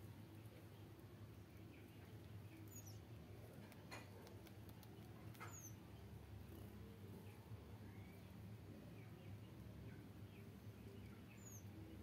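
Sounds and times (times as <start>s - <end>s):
low steady hum: 0.0s - 12.0s
soft clicks: 3.6s - 5.7s.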